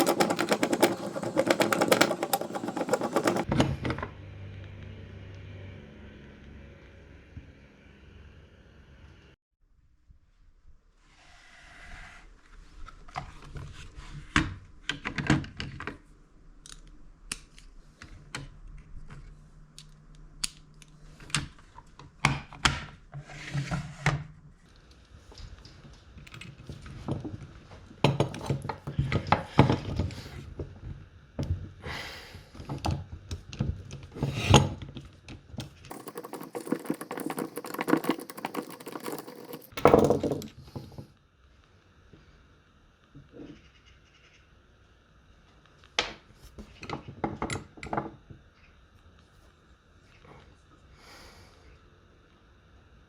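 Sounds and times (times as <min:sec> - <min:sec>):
metal tools clinking: 0:35.9 - 0:40.4.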